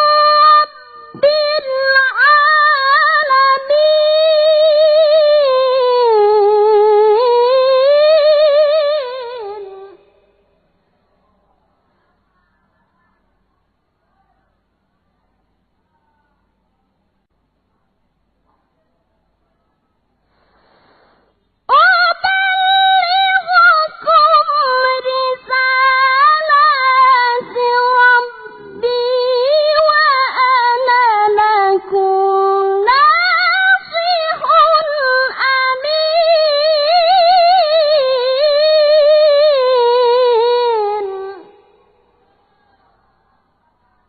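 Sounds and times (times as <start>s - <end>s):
boy reciting melodically: 21.8s - 41.7s.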